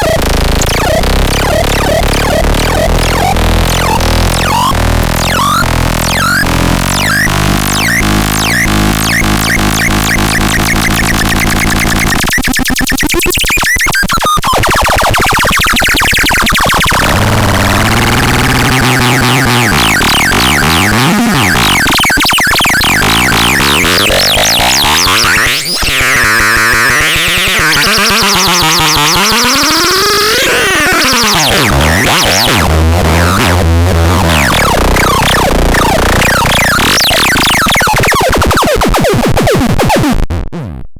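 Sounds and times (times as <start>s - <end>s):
synth bass line: 0.0s - 12.5s, 14.6s - 40.9s
sequenced synthesizer pattern: 0.0s - 40.8s
synth sweeps rising and falling: 16.9s - 39.1s.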